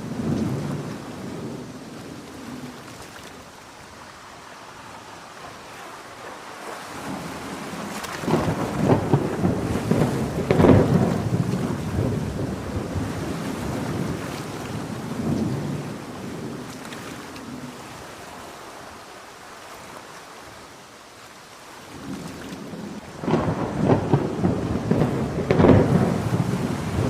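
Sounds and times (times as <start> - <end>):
thunder rumbling: 0.0 - 2.8, 7.0 - 16.8, 22.1 - 27.0
heavy rain: 0.0 - 27.0.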